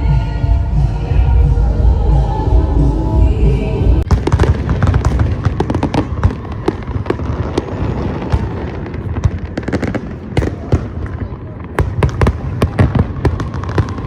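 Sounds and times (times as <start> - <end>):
fireworks cracking and popping: 4.0 - 14.0.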